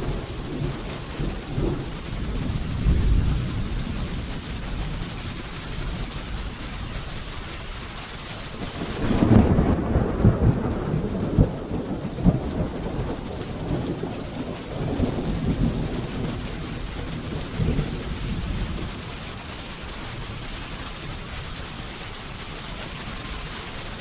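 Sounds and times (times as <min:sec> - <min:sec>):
thunder rumbling and cracking: 0:00.0 - 0:06.6, 0:08.6 - 0:19.9
steady rain hissing: 0:00.0 - 0:24.0.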